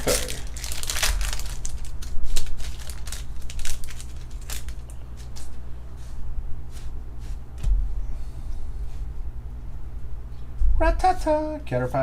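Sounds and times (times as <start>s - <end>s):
trading cards rustling and snapping: 0.0s - 5.6s
steady low hum: 0.0s - 12.0s.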